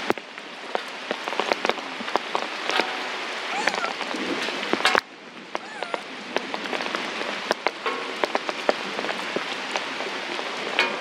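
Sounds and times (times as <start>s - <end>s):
heavy rain with drips: 0.0s - 11.0s
high-pitched calls: 3.5s - 4.0s.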